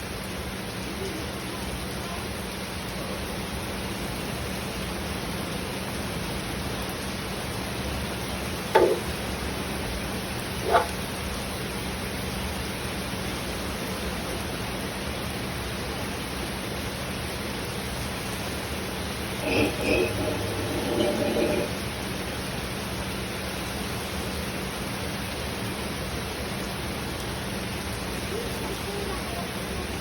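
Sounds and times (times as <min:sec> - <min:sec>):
rain falling: 0:00.0 - 0:19.6, 0:21.7 - 0:30.0
dog barking: 0:10.6 - 0:11.0.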